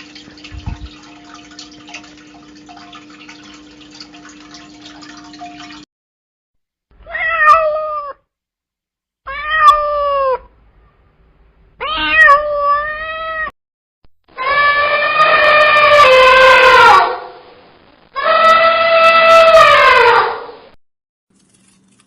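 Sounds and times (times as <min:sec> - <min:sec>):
cat meowing: 0:07.0 - 0:08.2, 0:09.3 - 0:10.5, 0:11.8 - 0:13.5, 0:14.4 - 0:17.1, 0:18.2 - 0:20.3.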